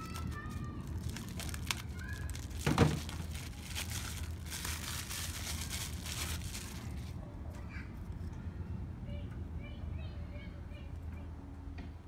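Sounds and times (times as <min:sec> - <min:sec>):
packaging crinkling and rustling: 0:00.0 - 0:07.2
thump: 0:02.6 - 0:03.1.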